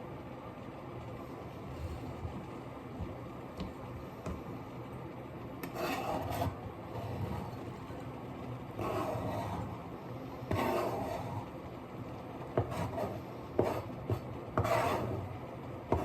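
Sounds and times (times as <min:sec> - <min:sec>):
scraping during food preparation: 0:05.6 - 0:08.0.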